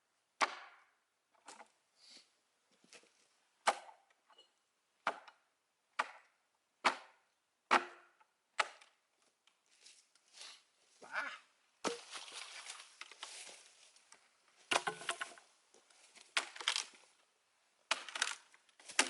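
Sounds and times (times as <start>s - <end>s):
axe chopping wood: 0.4s - 0.9s, 3.6s - 4.0s, 5.0s - 5.4s, 6.0s - 8.9s, 14.7s - 15.3s, 17.9s - 19.0s.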